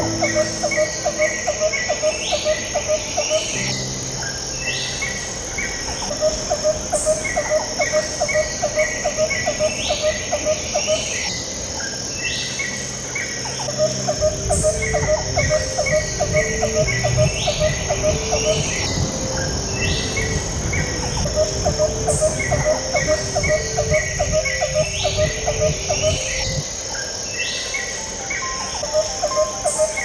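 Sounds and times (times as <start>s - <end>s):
ambient background music: 0.0s - 30.0s
chirping notes: 0.0s - 30.0s
high insect-like hum: 0.0s - 30.0s
ticking pulse: 13.9s - 26.6s.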